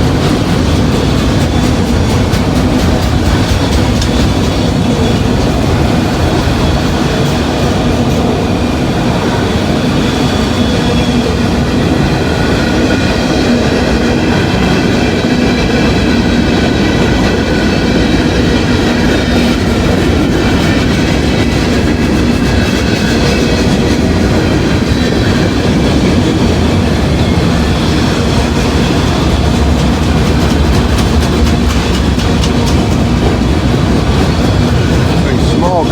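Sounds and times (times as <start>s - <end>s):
train wheels clattering on rails: 0.0s - 35.9s.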